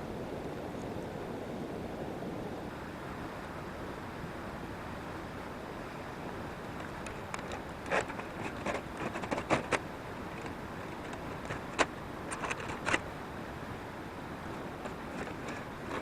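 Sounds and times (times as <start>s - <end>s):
steady background hiss: 0.0s - 16.0s
sharp clicks and knocks: 6.7s - 13.0s.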